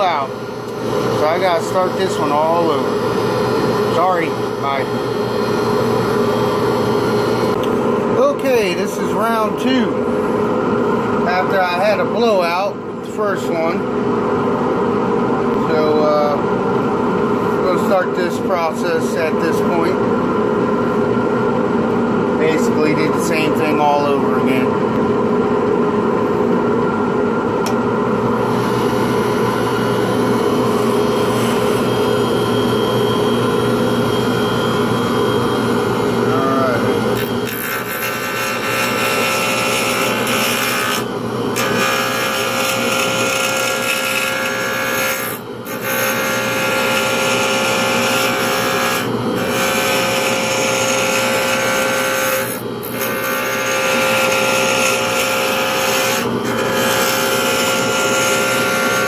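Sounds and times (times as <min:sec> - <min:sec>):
power tool running: 0:00.0 - 0:10.4, 0:27.6 - 0:59.0.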